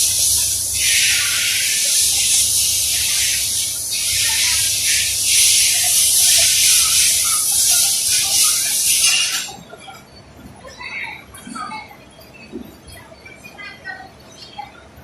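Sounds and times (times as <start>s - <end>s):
low machine hum: 0.0s - 8.7s
rushing air hiss: 0.0s - 9.6s.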